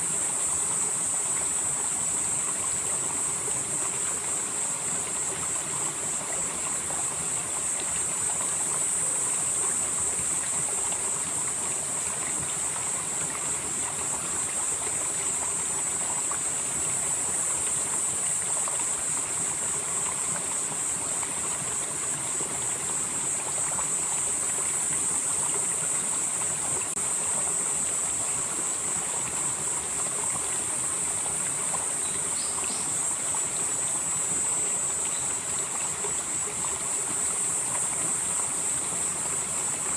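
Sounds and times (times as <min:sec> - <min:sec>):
stream flowing over rocks: 0:00.0 - 0:39.9
high-pitched insect chorus: 0:29.3 - 0:39.9.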